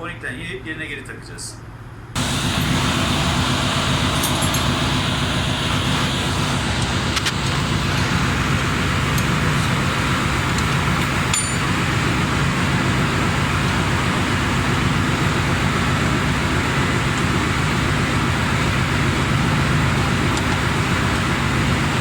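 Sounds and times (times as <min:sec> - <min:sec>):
engine room machinery drone: 0:01.4 - 0:22.0
faint metallic clinks: 0:04.2 - 0:04.8, 0:10.6 - 0:11.7.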